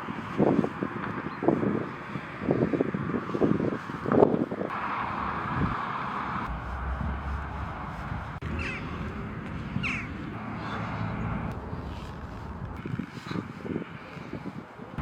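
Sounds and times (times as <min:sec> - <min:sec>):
steady background rush: 0:04.7 - 0:15.0
crow cawing: 0:08.6 - 0:09.0, 0:09.8 - 0:10.8.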